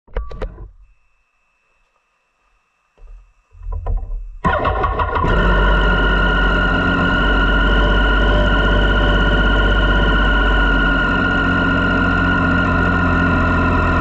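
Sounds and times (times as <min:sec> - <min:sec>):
motorcycle engine starting and idling: 0:04.4 - 0:14.0.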